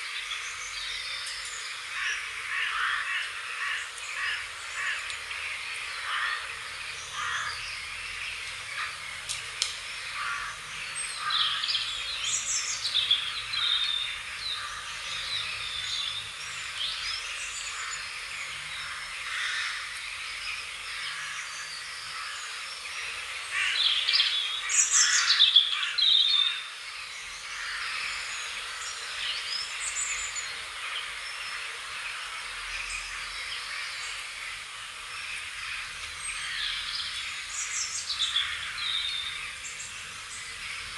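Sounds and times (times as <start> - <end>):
wild birds chirping: 0.0 - 40.9.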